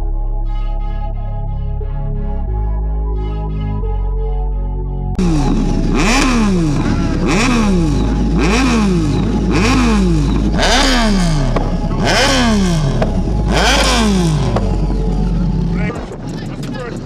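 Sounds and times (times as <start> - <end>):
steady low drone: 0.0 - 17.0
motorbike engine revving: 5.2 - 17.0.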